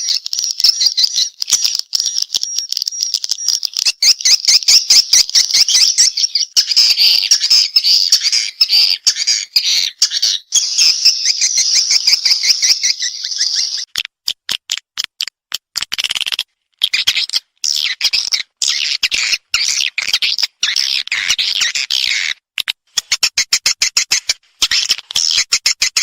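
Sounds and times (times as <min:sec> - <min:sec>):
swiftlet chattering twitters: 0:00.0 - 0:13.9.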